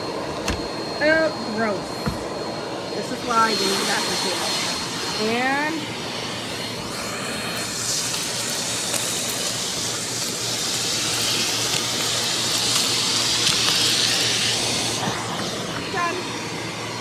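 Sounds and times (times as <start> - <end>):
vacuum cleaner running: 0.0 - 17.0
grit ticking in vacuum: 7.4 - 15.0.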